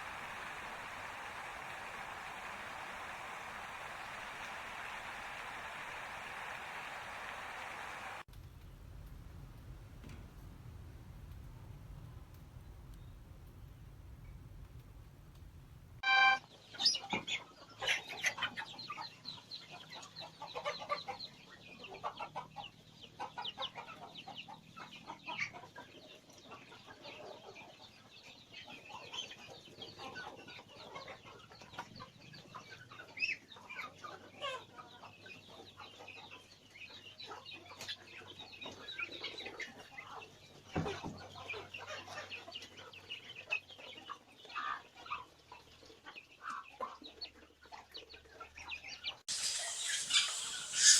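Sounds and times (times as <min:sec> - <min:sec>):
many birds chirping and clucking: 0:16.5 - 0:50.9.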